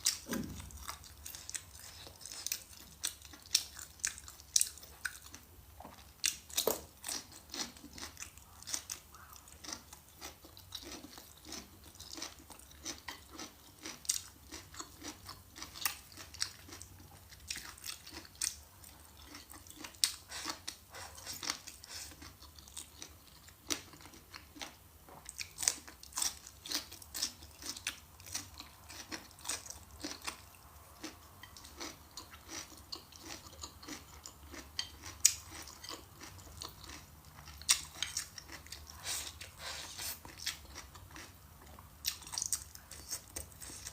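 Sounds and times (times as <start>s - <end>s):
crunchy food chewing: 0.0s - 43.9s.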